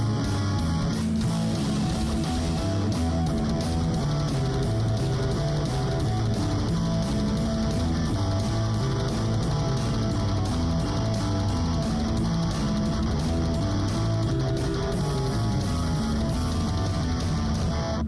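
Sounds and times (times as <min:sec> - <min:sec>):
guitar rock music: 0:00.0 - 0:18.0.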